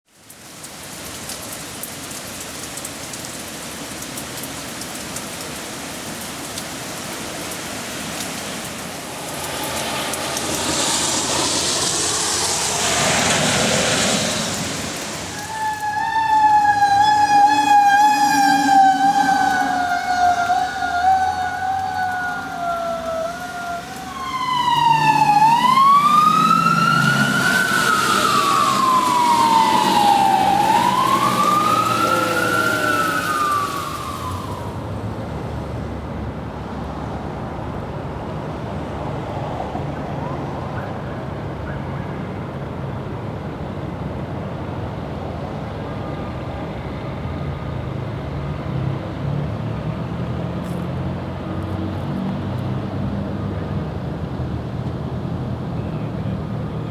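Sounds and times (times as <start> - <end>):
emergency vehicle siren: 6.5 - 35.3
vehicle rumble: 7.3 - 36.1.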